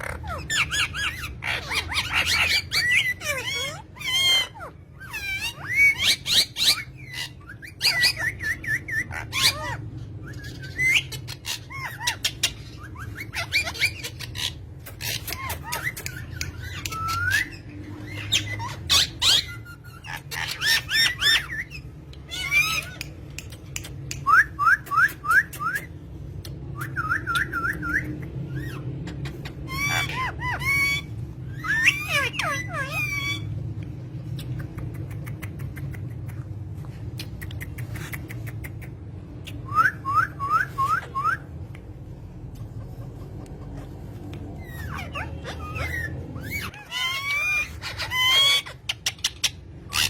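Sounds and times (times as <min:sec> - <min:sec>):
chattering bird calls: 0:00.0 - 0:26.0, 0:37.2 - 0:40.0
steady low hum: 0:00.0 - 0:50.0.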